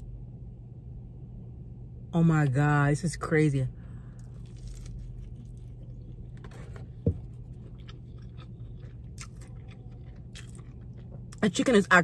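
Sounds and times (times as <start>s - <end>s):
low steady hum: 0.0s - 12.0s
close-up chewing with crunching: 4.2s - 12.0s.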